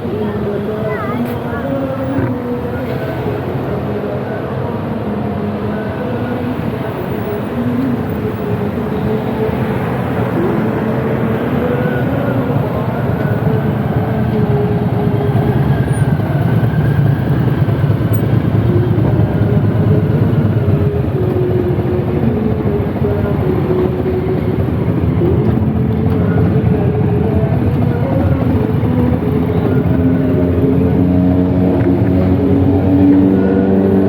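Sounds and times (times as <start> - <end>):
car engines running: 0.0 - 34.0.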